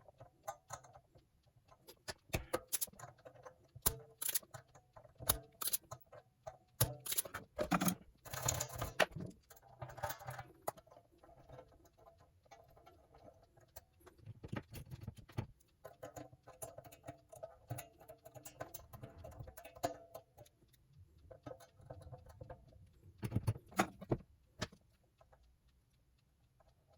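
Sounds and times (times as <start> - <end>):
clicks and clinks of guitar hardware: 6.8 - 9.2.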